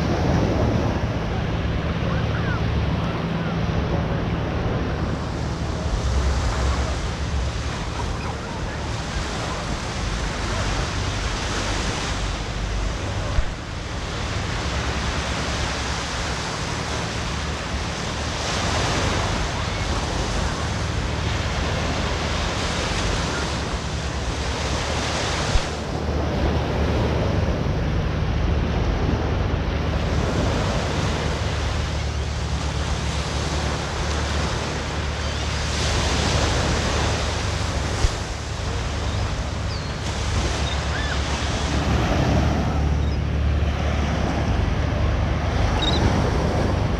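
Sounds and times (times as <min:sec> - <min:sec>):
ocean surf washing onto beach: 0:00.0 - 0:46.9.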